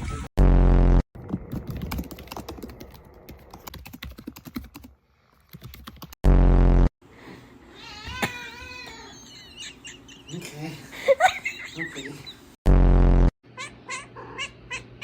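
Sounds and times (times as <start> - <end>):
loud low buzzing tone: 0.4 - 1.0, 6.2 - 6.9, 12.7 - 13.3
keyboard typing: 1.2 - 4.9, 5.5 - 6.2.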